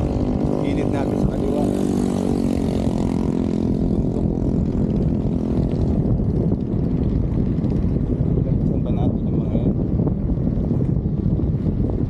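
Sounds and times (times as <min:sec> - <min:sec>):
passing vehicle engine drone: 0:00.0 - 0:07.8
wind buffeting microphone: 0:00.0 - 0:12.0.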